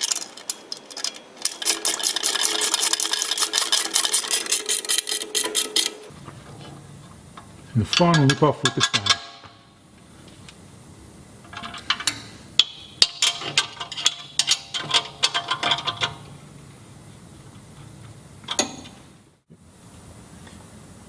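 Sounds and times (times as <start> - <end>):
spanner clicking on metal: 0.0 - 6.1, 7.4 - 9.6, 11.4 - 16.5, 18.4 - 19.1.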